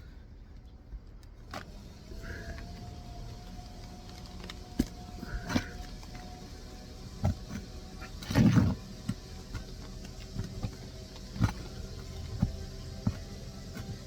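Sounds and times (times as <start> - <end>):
steady low hum: 0.0 - 14.0
tool scraping shingles: 1.4 - 14.0.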